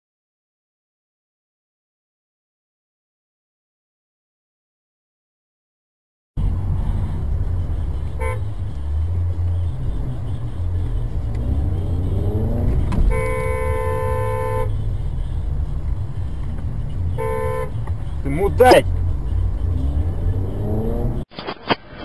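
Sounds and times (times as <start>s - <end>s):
road and engine rumble: 6.4s - 22.0s
car horn honking: 8.0s - 8.7s, 11.4s - 14.8s, 16.9s - 19.0s.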